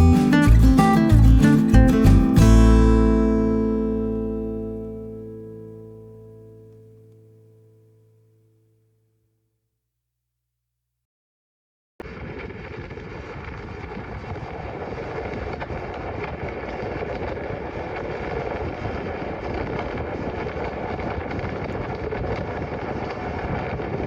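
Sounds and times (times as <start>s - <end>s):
motorcycle engine and wind roar: 13.4s - 24.0s.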